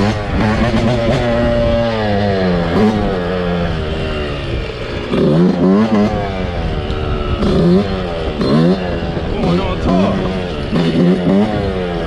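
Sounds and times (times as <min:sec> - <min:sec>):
small motorcycle engine revving: 0:00.0 - 0:12.0.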